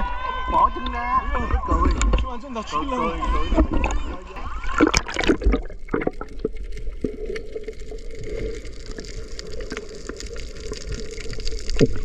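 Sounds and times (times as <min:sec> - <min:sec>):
sea water sloshing and lapping: 0:03.2 - 0:12.0
small splashes: 0:03.4 - 0:12.0.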